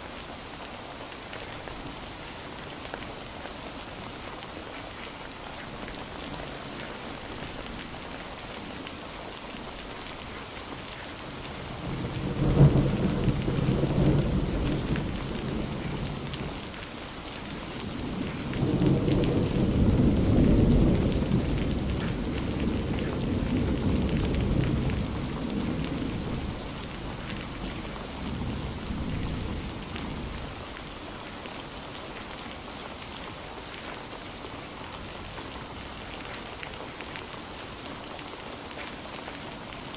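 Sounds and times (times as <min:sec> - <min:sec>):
rain falling: 0:00.0 - 0:39.9
thunder clap and rumble: 0:11.6 - 0:16.6, 0:17.8 - 0:30.6.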